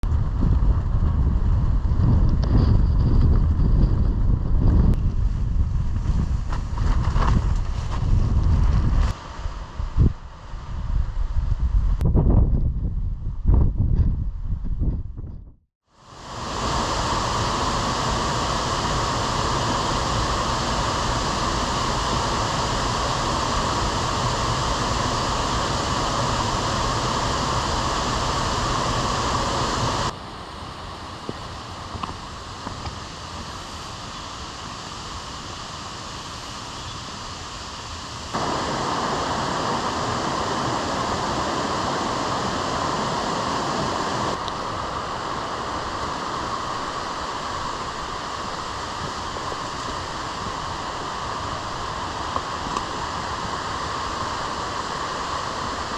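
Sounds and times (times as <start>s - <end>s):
strong wind: 0.0s - 55.9s
rain: 15.9s - 55.9s.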